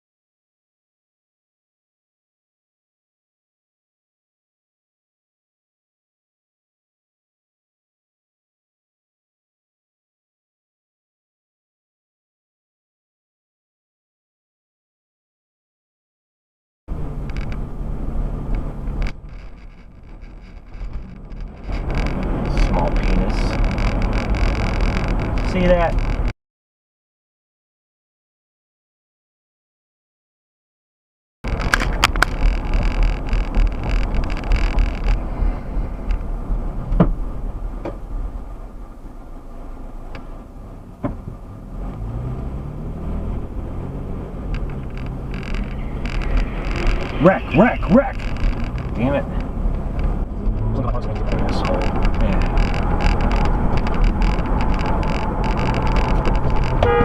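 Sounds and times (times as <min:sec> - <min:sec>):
car engine hum: 0:16.9 - 0:26.3, 0:31.5 - 0:57.0
road noise: 0:16.9 - 0:26.4, 0:31.4 - 0:57.0.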